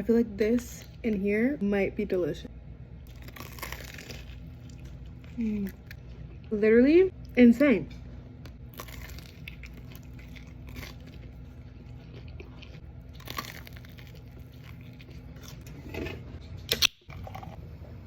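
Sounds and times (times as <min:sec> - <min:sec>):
person chewing and crunching food: 0:03.0 - 0:06.6, 0:07.9 - 0:17.7.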